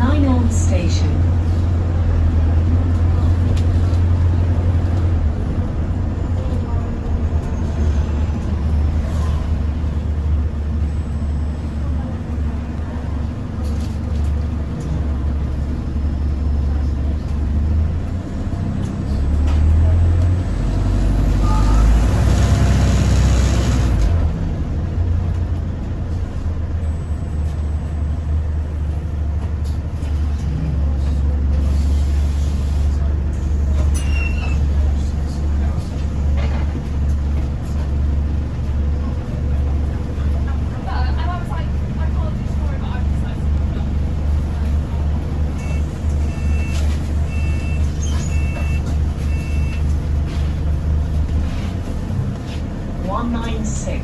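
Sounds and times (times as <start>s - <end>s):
bus engine drone: 0.0s - 54.0s
two-pitch electronic door beeps: 45.6s - 49.8s.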